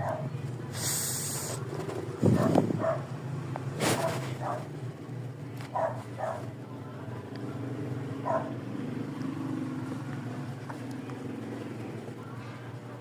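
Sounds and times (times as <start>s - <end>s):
dog bark: 0.0s - 0.3s, 2.3s - 3.1s, 3.8s - 4.7s, 5.7s - 6.6s, 8.2s - 8.6s.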